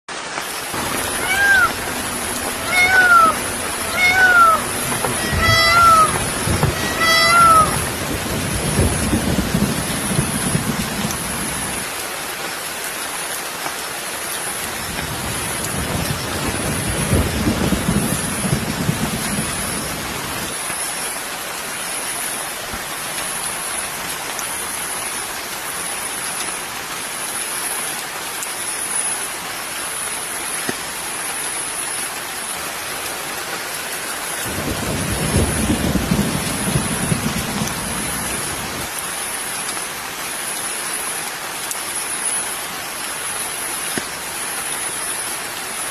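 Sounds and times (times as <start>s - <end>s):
rain hissing: 0.1s - 45.9s
low rumbling: 0.8s - 10.4s.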